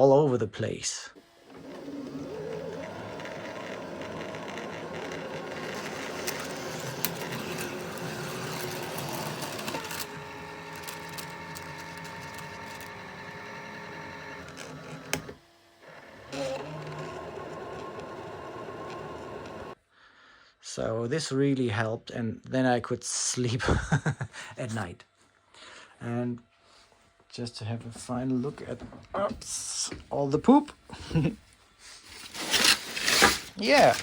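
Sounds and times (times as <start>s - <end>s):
printer motors whirring: 1.2s - 19.8s.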